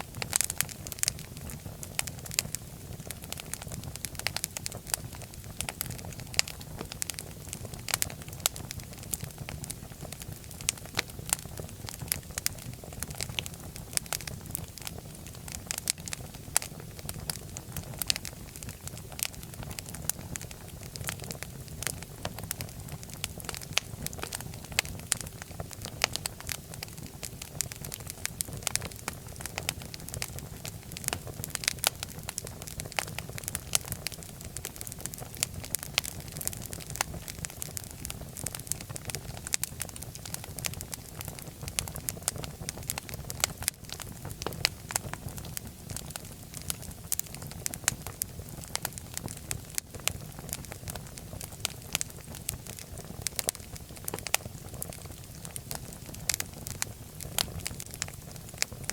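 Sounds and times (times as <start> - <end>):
fireplace fire crackling: 0.0 - 58.9.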